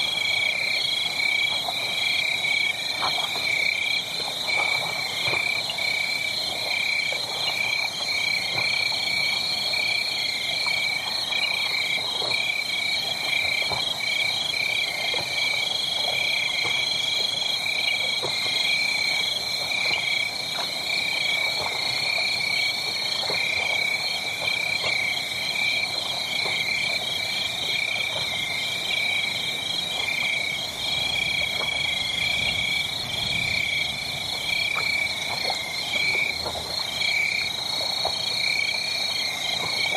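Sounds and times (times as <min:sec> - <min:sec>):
wood fire crackling: 0:28.9 - 0:38.3.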